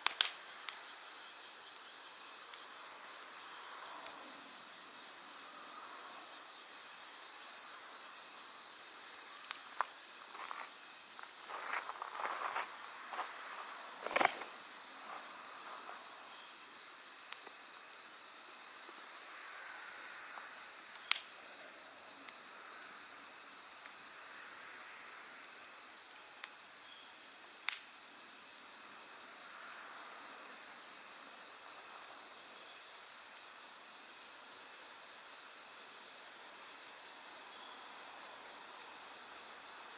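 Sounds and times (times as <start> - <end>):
wood fire crackling: 0.0 - 0.9, 9.2 - 16.3, 20.8 - 21.4
night insect chorus: 0.0 - 39.9.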